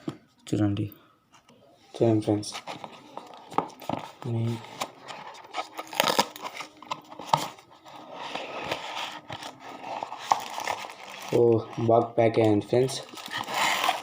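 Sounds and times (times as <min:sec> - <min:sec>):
packaging crinkling and tearing: 0:02.6 - 0:11.8, 0:12.9 - 0:14.0.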